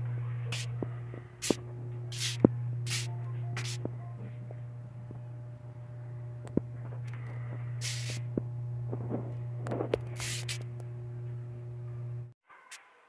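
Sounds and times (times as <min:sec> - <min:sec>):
low hum: 0:00.0 - 0:12.4
burst of hiss: 0:07.8 - 0:08.2.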